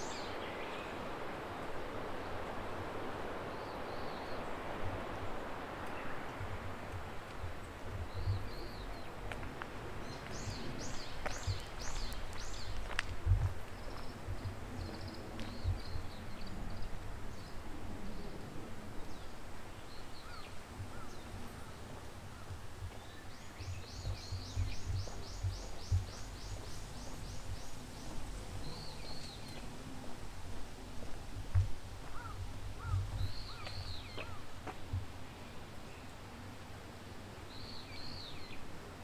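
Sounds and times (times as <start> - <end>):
footsteps walking: 9.2 - 14.6, 24.0 - 28.2, 29.2 - 35.1
birds calling: 19.9 - 29.7, 32.1 - 34.5.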